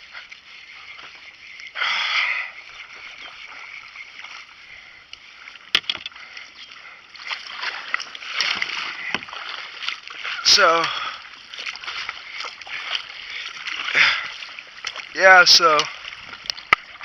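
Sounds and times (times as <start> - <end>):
paddle splashing water: 0.0 - 17.0.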